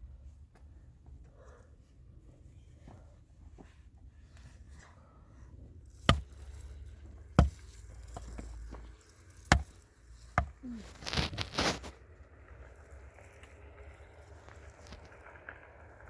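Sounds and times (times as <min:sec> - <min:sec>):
short scraping rustle: 0:05.9 - 0:12.0.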